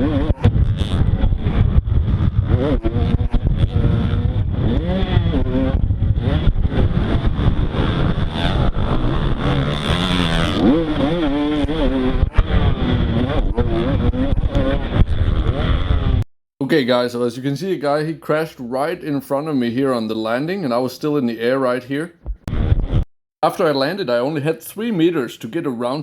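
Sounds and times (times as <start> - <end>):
motocross bike engine revving: 0.0 - 16.2.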